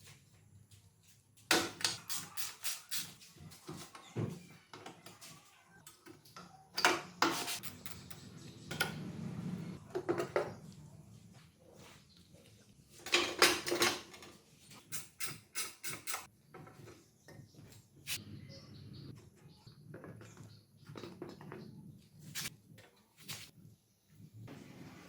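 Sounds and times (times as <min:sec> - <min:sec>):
hand tools and metal parts clinking: 0:04.7 - 0:09.0, 0:12.9 - 0:18.2.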